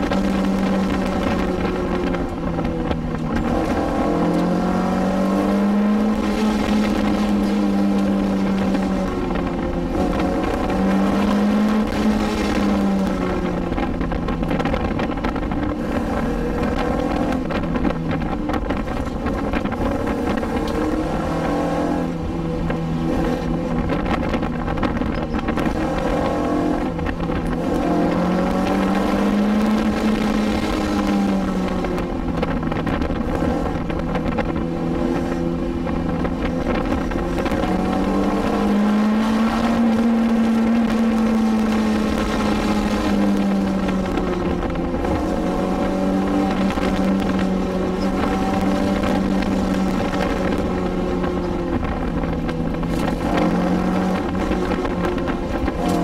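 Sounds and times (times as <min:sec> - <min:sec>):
car engine revving: 0:00.0 - 0:56.0
road and wind noise: 0:00.0 - 0:56.0.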